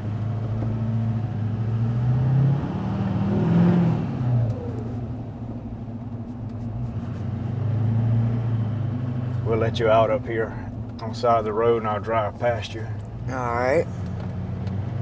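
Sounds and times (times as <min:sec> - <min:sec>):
diesel truck engine revving: 0:00.0 - 0:05.3, 0:07.2 - 0:10.2.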